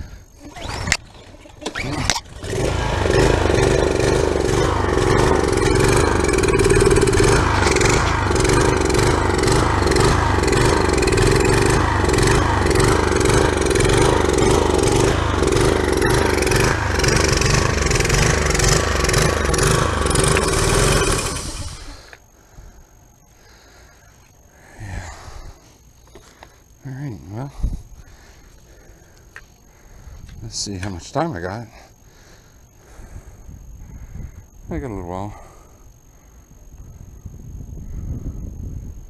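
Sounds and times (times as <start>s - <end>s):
pressure washer engine running: 1.8s - 22.1s.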